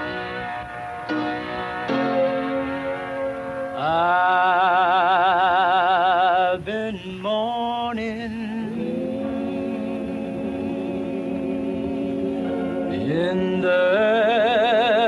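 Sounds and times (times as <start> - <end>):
high lead voice with vibrato: 0.0 - 6.6
low male voices singing: 3.8 - 15.0.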